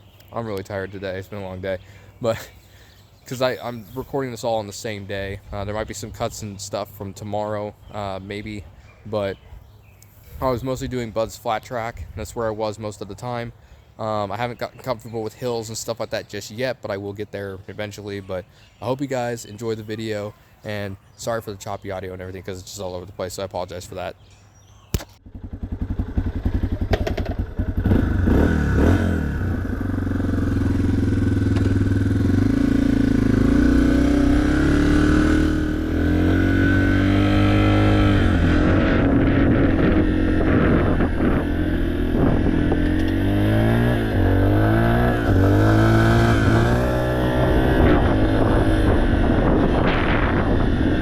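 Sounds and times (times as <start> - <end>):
motorbike engine revving: 25.2 - 51.0.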